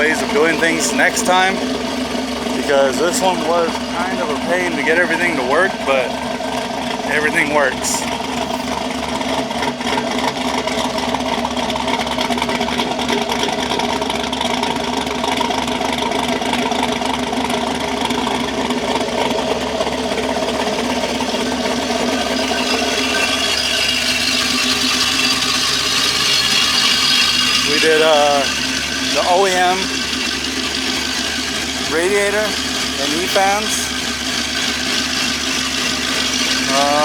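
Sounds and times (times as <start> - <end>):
engine idling: 0.0 - 37.0.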